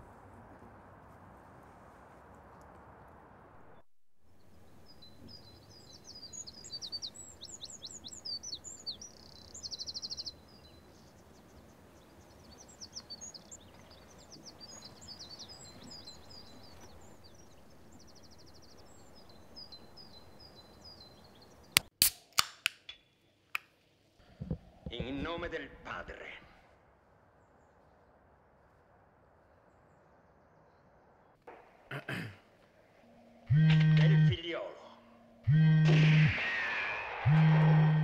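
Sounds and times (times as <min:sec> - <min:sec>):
birds singing: 0:04.4 - 0:21.9, 0:33.0 - 0:38.0
loud sharp clicks: 0:21.8 - 0:23.0.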